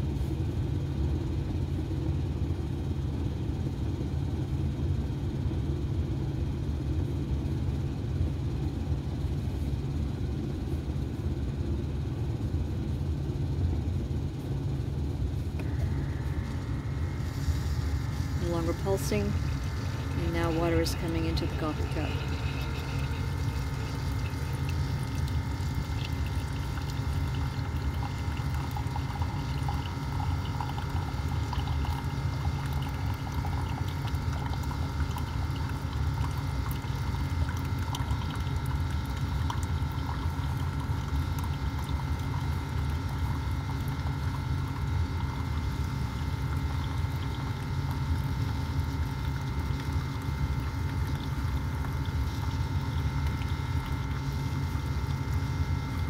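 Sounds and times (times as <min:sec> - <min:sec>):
coffee maker humming: 0:00.0 - 0:56.0
coffee pouring into mug: 0:15.6 - 0:56.0.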